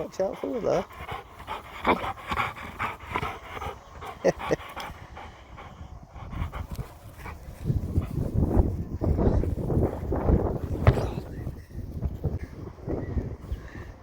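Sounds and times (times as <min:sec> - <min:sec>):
dog panting: 0:00.0 - 0:09.5.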